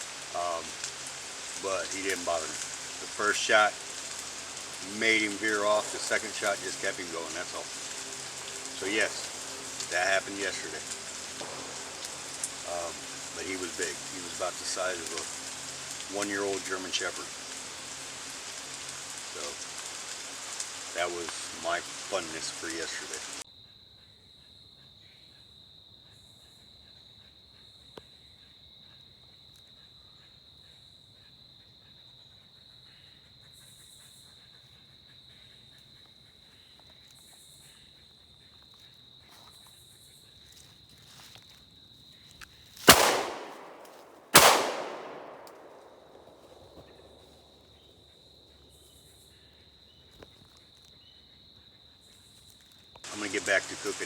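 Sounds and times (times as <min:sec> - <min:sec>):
high-pitched insect drone: 0:04.8 - 0:23.4
loud sharp bangs with echo: 0:42.9 - 0:47.0.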